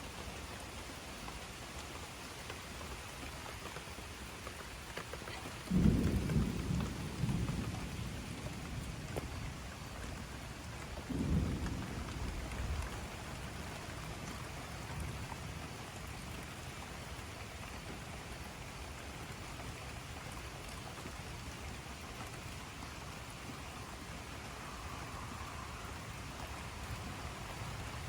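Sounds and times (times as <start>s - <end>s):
steady rain falling: 0.0s - 28.0s
thunder rumbling: 5.3s - 16.4s.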